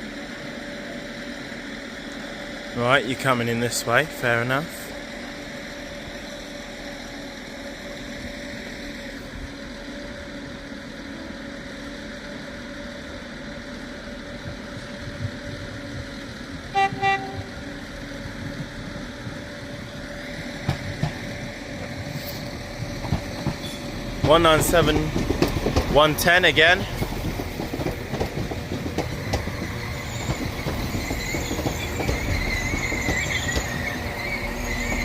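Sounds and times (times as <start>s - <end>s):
train engines humming: 0.0s - 35.0s
train horn toots: 16.7s - 17.7s.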